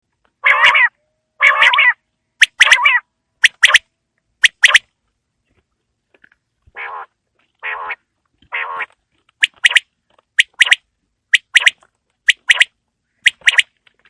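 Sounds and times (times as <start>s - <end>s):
quail calling: 0.4s - 3.8s, 6.7s - 9.8s, 11.4s - 13.7s.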